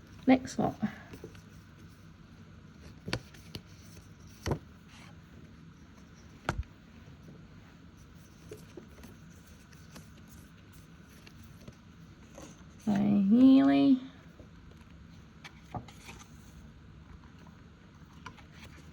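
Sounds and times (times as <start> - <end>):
paper envelopes and binder handling: 8.0 - 13.5, 14.4 - 16.6.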